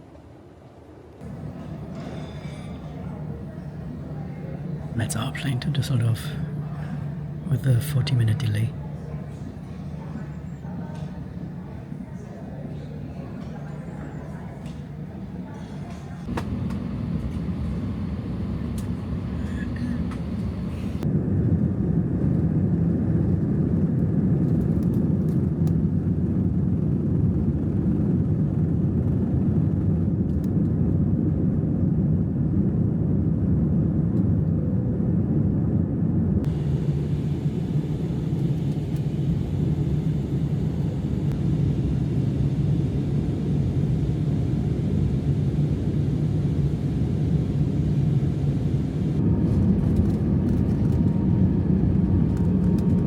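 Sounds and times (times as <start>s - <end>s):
low vehicle rumble: 8.7s - 21.0s, 36.5s - 53.0s.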